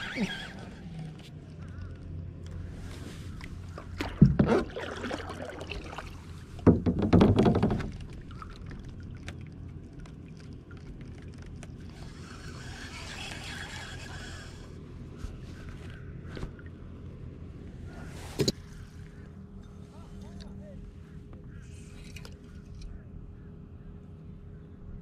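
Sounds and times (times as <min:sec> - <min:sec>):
water splashing around kayak: 0:02.8 - 0:11.8.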